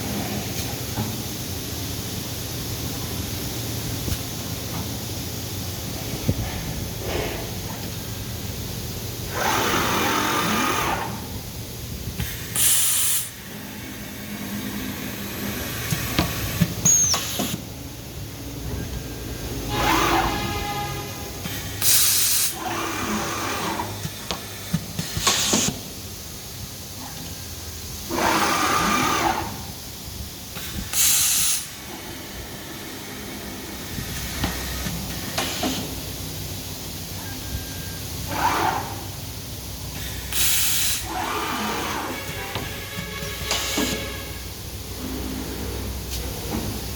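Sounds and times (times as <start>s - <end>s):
compressed air hissing: 9.0s - 27.0s, 27.9s - 37.1s, 38.4s - 46.9s
short air hiss: 12.2s - 13.4s, 30.6s - 31.8s, 40.0s - 41.0s.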